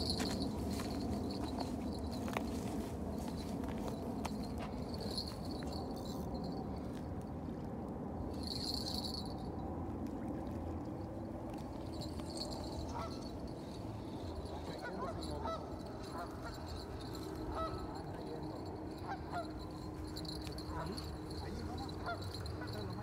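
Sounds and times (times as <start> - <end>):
birds calling: 12.0 - 23.0.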